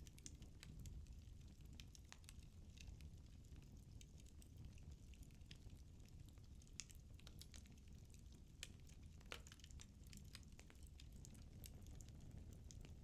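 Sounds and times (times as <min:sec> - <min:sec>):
low steady fire rumble: 0:00.0 - 0:13.0
firewood crackling and popping: 0:04.0 - 0:13.0.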